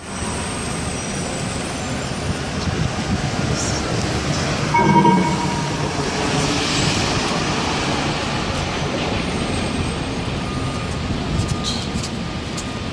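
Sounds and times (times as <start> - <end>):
loud pitched horn blast: 4.7 - 6.7
city street traffic: 6.1 - 12.9.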